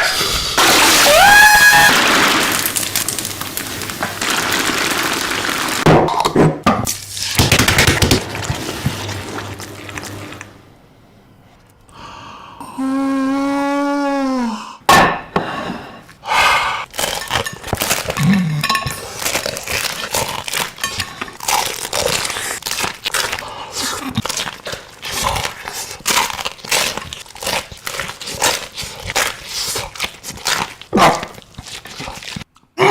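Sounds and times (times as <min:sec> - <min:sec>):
chewing and crunching: 0:16.9 - 0:32.7.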